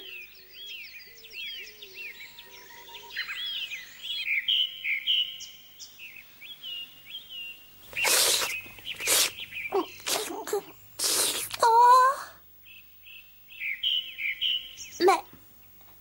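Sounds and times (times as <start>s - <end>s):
bird chirping: 0.0s - 12.0s, 12.6s - 15.8s
loud hissing burst: 7.9s - 11.7s.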